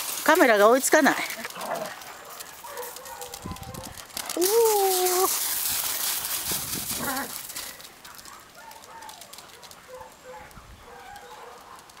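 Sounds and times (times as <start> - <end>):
crunching on gravel: 0.0 - 12.0.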